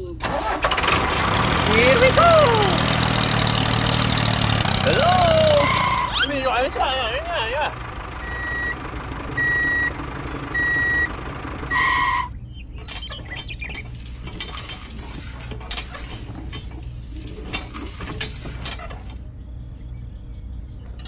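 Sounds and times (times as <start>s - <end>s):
vehicle reversing alarm beeping: 8.2s - 12.7s
rattling mechanical clatter: 12.7s - 19.3s.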